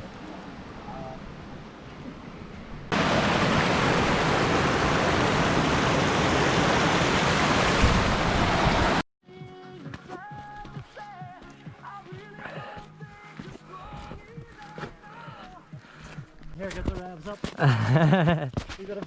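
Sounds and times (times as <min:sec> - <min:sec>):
loud rushing hiss: 0:03.0 - 0:09.0.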